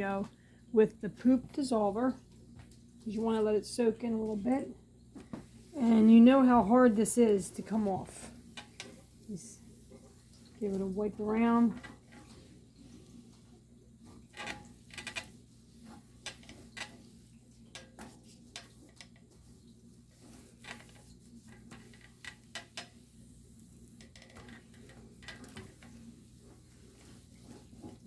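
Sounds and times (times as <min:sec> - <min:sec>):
faint steady hum: 0:00.0 - 0:28.0
rag wiping a tray: 0:18.0 - 0:28.0.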